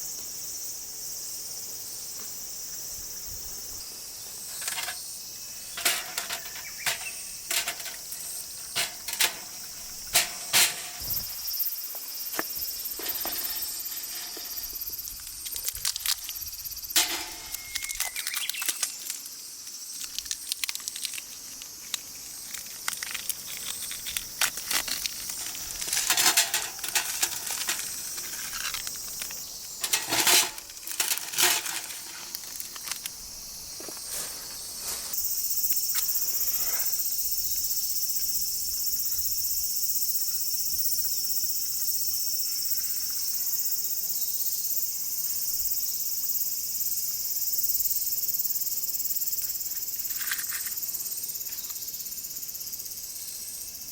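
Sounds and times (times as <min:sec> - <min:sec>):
insects chirring: 0:00.0 - 0:53.9
small clicks and crackles: 0:14.3 - 0:16.5, 0:17.4 - 0:33.2.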